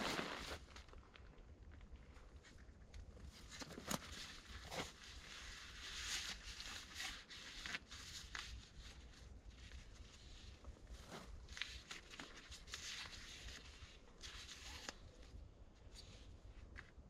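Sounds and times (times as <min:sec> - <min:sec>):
tarp rustling: 0:00.0 - 0:01.0, 0:09.5 - 0:14.9.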